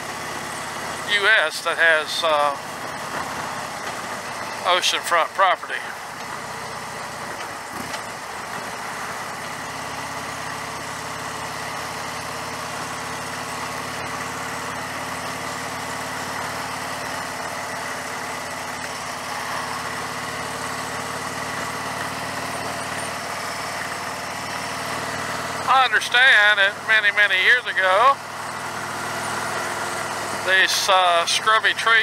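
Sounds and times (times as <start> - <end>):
motorcycle engine running: 0.0 - 32.0
road noise: 0.0 - 32.0.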